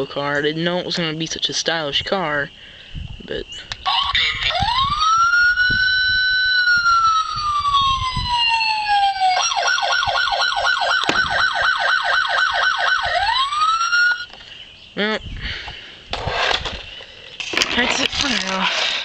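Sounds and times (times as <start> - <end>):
toy electronic siren wailing: 3.8 - 14.3.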